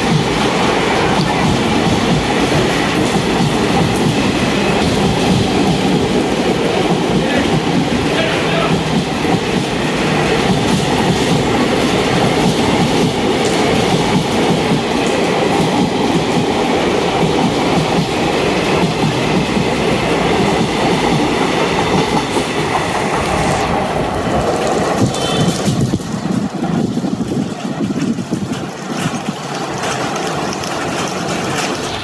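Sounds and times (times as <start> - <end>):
train wheels rumbling on rail: 0.0 - 32.0
clatter over rail joints: 24.4 - 32.0.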